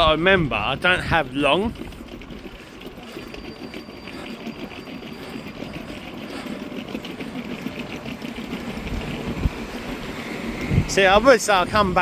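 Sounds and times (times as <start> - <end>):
fast even rattle: 0.0 - 12.0.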